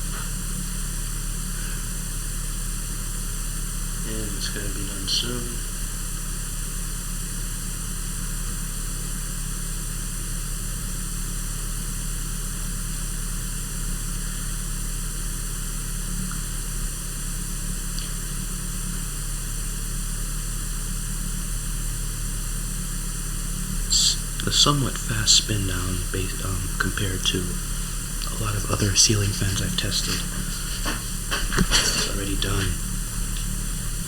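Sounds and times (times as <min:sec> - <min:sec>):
steady hiss: 0:00.0 - 0:07.9, 0:14.1 - 0:34.0
low hum: 0:23.3 - 0:34.0.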